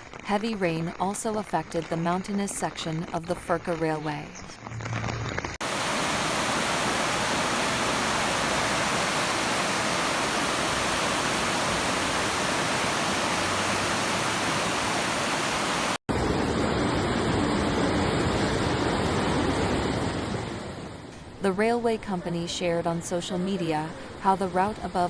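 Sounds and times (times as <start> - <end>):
floodwater rushing: 5.6 - 20.3.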